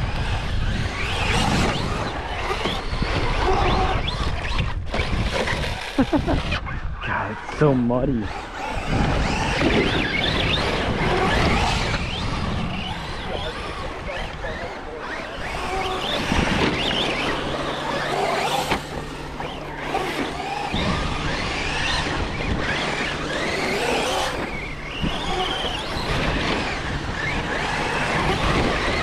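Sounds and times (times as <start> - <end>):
electric motors whining: 0.0 - 29.0
tyres churning over mud: 7.1 - 29.0.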